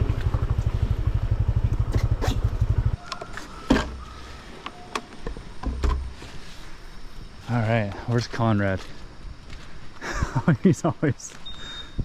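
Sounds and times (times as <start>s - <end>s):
motorbike engine idling: 0.0s - 3.2s.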